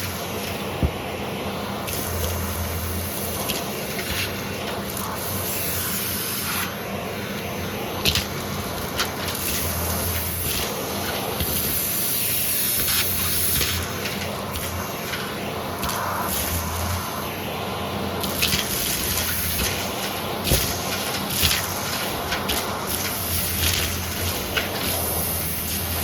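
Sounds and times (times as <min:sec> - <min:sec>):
vacuum cleaner running: 0:00.0 - 0:26.0
debris clicking in vacuum: 0:18.2 - 0:26.0.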